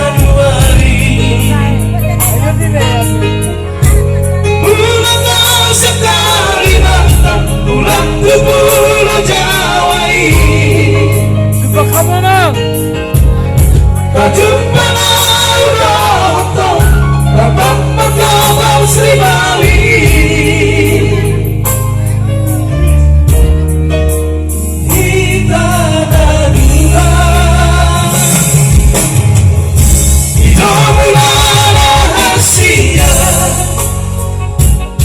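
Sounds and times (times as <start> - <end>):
vocal trio singing in harmony: 0.0 - 2.2, 3.7 - 11.8, 13.7 - 22.1, 24.8 - 29.2, 29.8 - 34.4
band with steady bass: 0.0 - 35.0.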